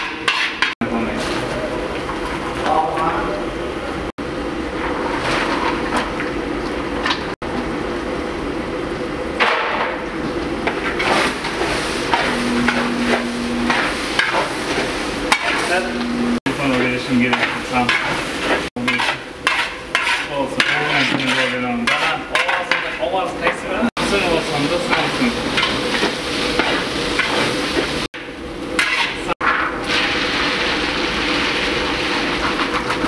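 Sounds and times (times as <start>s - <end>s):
food sizzling in oil: 10.6s - 21.2s, 24.0s - 33.0s
ladle scraping a pot: 17.2s - 23.1s.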